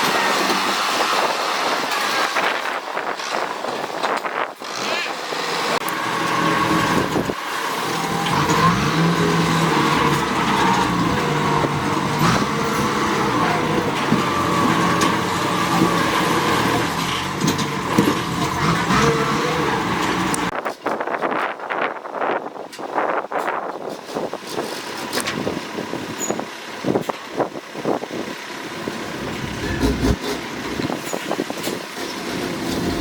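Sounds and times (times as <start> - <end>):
heavy vehicle engine running: 5.1 - 20.5, 24.5 - 33.0.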